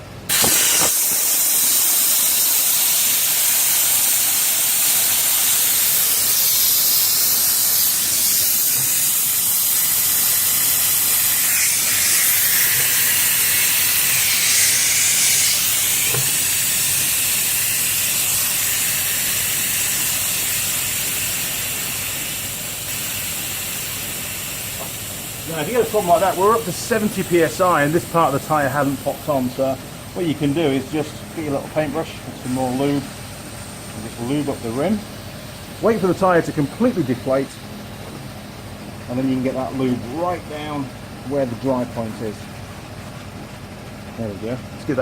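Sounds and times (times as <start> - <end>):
compressed air hissing into tyre: 0.3 - 30.0.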